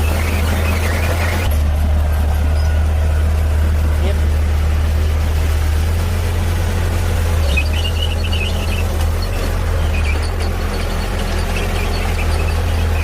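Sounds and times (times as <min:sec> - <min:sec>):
high-pitched squeaking: 0:00.0 - 0:01.5, 0:07.4 - 0:13.0
bulldozer diesel engine droning: 0:00.0 - 0:13.0.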